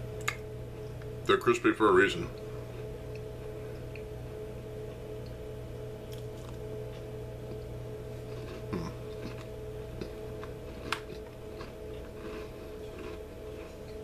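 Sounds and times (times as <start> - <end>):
background hum: 0.0 - 14.0
chewing crispy cookie: 6.1 - 14.0.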